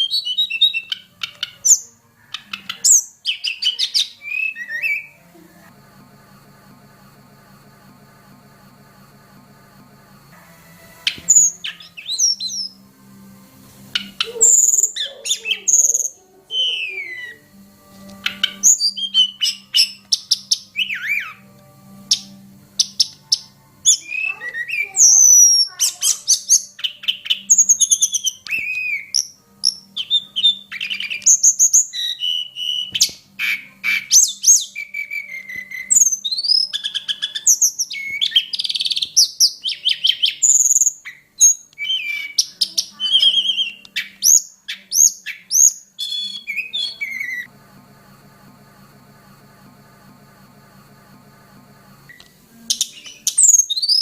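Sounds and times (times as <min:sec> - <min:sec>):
bird singing chirps and whistles: 0:00.0 - 0:05.2, 0:11.0 - 0:12.8, 0:14.0 - 0:17.5, 0:18.2 - 0:21.5, 0:22.1 - 0:47.5, 0:52.1 - 0:54.0.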